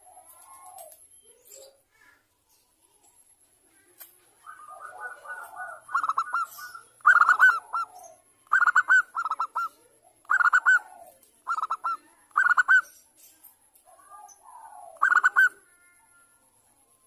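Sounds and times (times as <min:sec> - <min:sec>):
dove cooing: 0:00.0 - 0:01.0, 0:04.3 - 0:12.9, 0:13.9 - 0:16.1.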